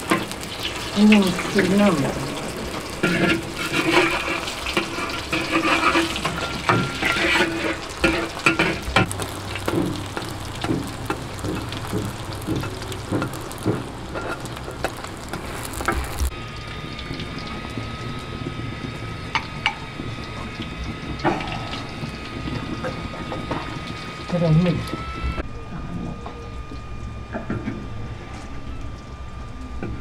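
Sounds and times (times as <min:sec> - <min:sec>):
bread sizzling in oil: 0:00.0 - 0:25.4
metal spatula scraping and tapping pan: 0:03.0 - 0:16.0.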